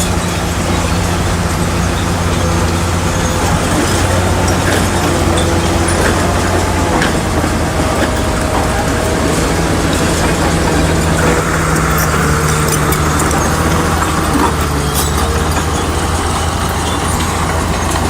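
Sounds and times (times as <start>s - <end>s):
diesel engine running under load: 0.0s - 18.0s.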